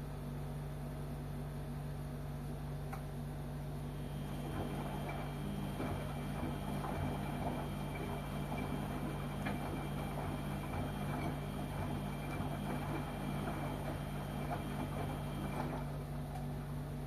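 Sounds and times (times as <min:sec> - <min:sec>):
washing machine motor humming: 0:03.2 - 0:17.0
washing machine churning: 0:03.8 - 0:17.0.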